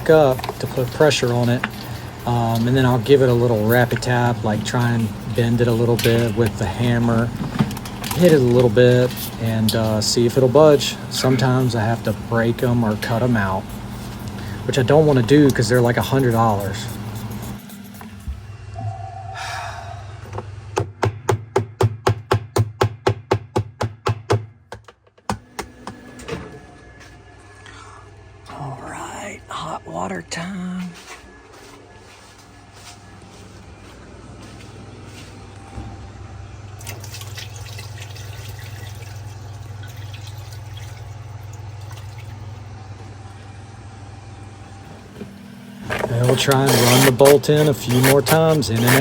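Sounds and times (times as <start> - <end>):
steady low hum: 0.0 - 20.9, 25.4 - 49.0
water splashing and dripping: 36.8 - 42.4.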